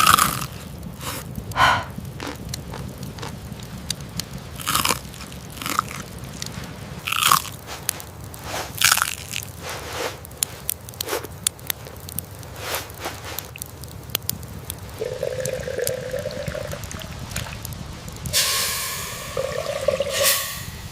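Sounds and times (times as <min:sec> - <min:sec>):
crunchy bites and chewing: 0:00.0 - 0:03.4, 0:04.6 - 0:07.6, 0:08.7 - 0:09.6
sharp crackles: 0:00.0 - 0:20.6.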